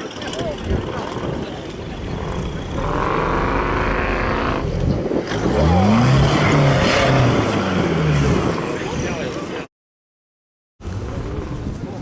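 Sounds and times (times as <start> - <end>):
off-road vehicle engine revving: 0.2 - 9.4.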